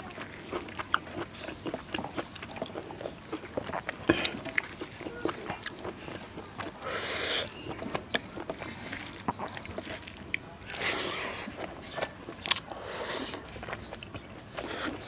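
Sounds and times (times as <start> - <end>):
wet chewing and lip-smacking: 0.0 - 15.0
breathy slurp: 4.0 - 7.6, 10.7 - 11.7, 12.7 - 13.5, 14.6 - 15.0.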